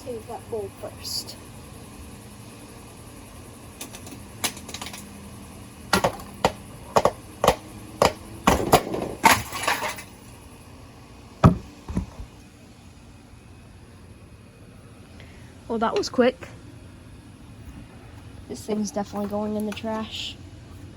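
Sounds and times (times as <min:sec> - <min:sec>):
hammer smashing ceiling fan: 0:06.0 - 0:10.1.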